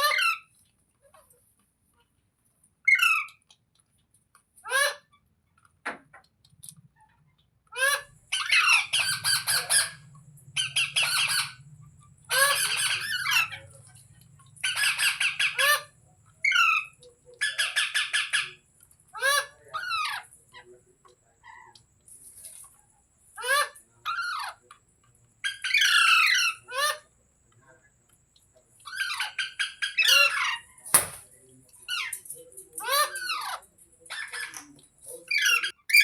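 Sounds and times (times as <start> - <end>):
parrot squawking: 0.0 - 0.5, 2.9 - 3.4, 4.6 - 5.2, 7.1 - 20.3, 25.4 - 27.1, 28.8 - 31.2, 32.8 - 36.0.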